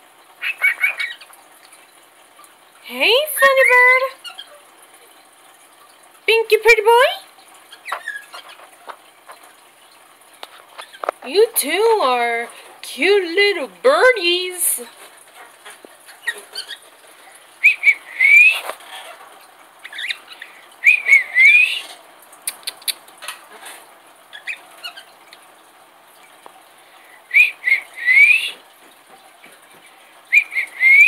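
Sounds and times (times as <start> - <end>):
pet bird whistling: 17.6 - 18.7, 20.8 - 21.9, 27.3 - 28.6, 30.3 - 31.0
soft bird chirps and clicks: 21.1 - 23.4.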